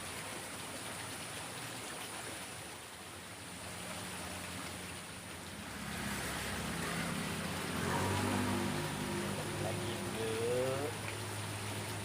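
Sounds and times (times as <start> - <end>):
low engine hum: 3.0 - 12.0
water hissing: 5.6 - 12.0.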